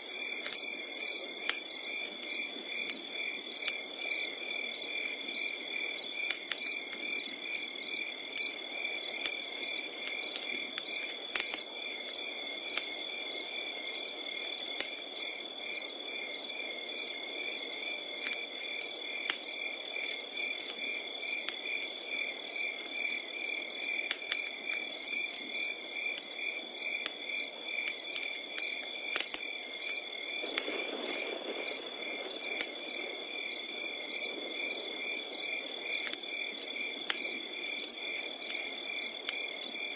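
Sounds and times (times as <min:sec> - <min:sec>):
insect high trill: 0:00.0 - 0:01.9
campfire crackling and popping: 0:00.0 - 0:39.9
crickets chirping: 0:00.0 - 0:39.9.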